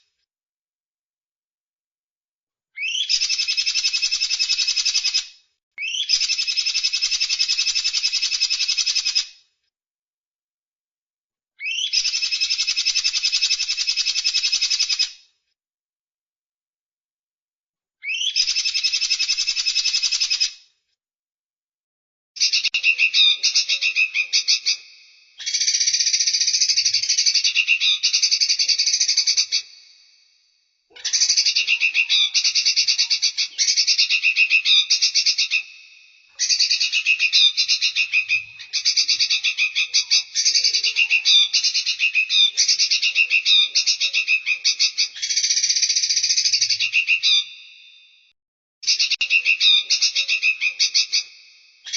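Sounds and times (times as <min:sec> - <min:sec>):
songbird trilling: 0:02.8 - 0:05.2, 0:05.8 - 0:09.2, 0:11.6 - 0:15.0, 0:18.0 - 0:20.4, 0:22.4 - 0:30.0, 0:31.0 - 0:47.7, 0:48.8 - 0:51.9.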